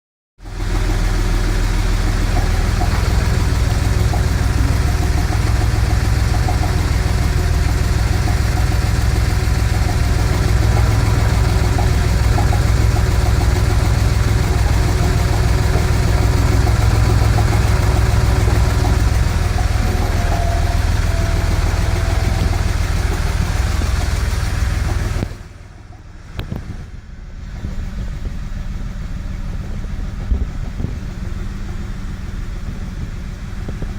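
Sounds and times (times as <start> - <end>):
car engine idling: 0.4 - 33.9.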